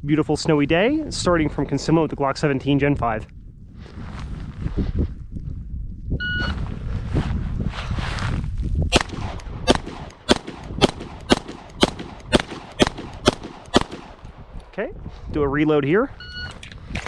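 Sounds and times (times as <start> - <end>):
pistol shots: 8.9 - 14.4.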